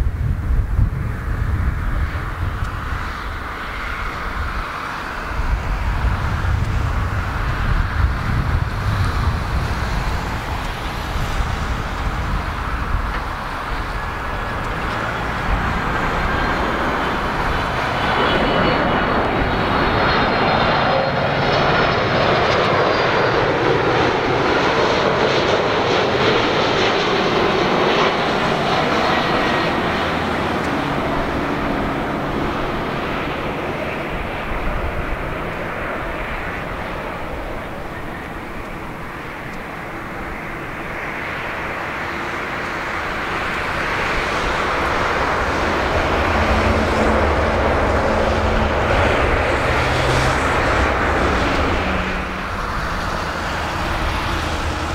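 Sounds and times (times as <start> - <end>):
jet engines with fan whine: 0.0 - 54.9
wind rumble on microphone: 0.0 - 54.9.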